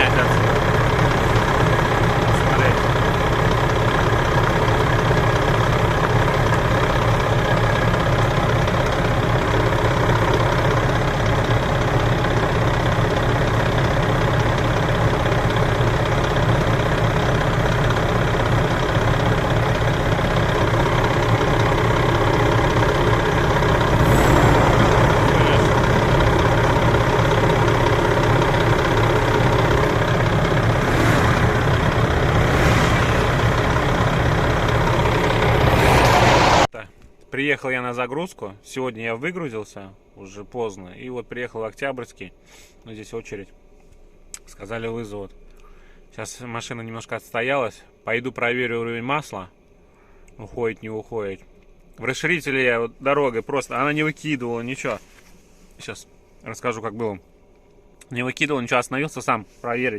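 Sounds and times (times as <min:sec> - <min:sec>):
truck diesel engine idling: 0:00.0 - 0:36.6.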